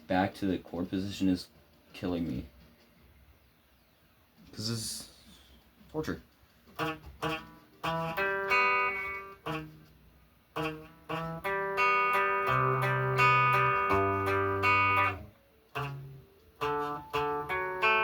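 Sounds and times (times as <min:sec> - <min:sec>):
guitar chords: 0:06.8 - 0:18.0.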